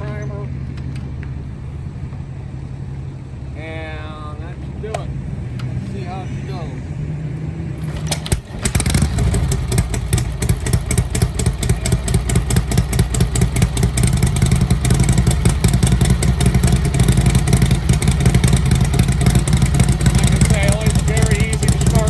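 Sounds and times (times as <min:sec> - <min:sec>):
motorcycle engine running: 0:07.7 - 0:22.0.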